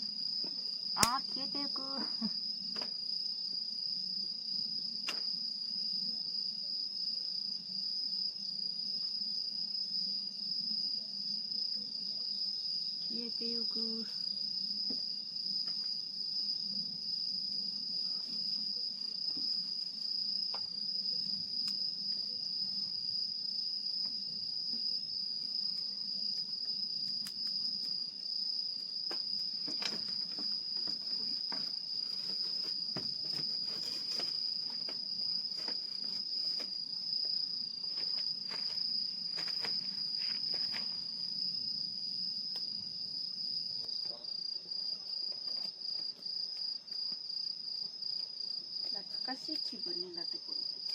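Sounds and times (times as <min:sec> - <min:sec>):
crickets trilling: 0:00.0 - 0:50.9
wood fire crackling: 0:13.7 - 0:44.2.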